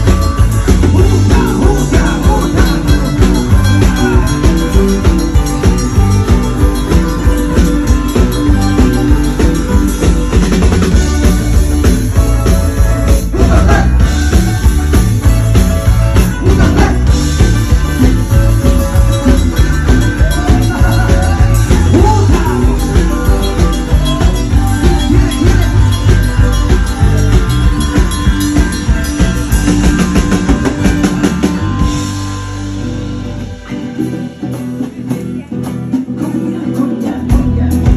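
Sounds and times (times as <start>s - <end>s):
band playing loud music: 0.0s - 37.9s
person singing: 0.1s - 10.4s, 12.2s - 14.6s, 16.2s - 27.8s, 33.5s - 37.9s.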